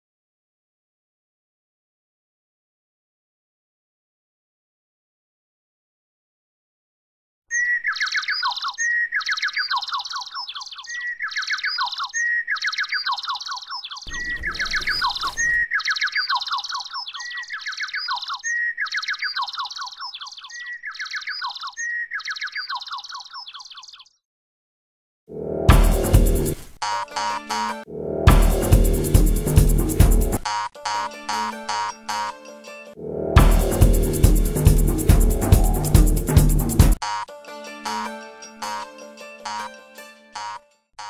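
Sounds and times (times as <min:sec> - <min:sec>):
songbird singing: 0:07.5 - 0:24.2.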